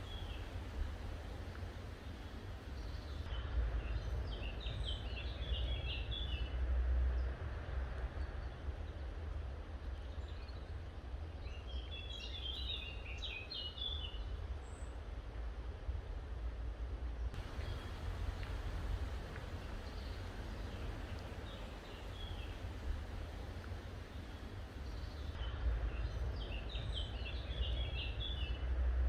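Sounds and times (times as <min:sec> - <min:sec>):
songbird chirping: 0:00.0 - 0:06.5, 0:17.3 - 0:28.6
low rumble: 0:17.4 - 0:27.0.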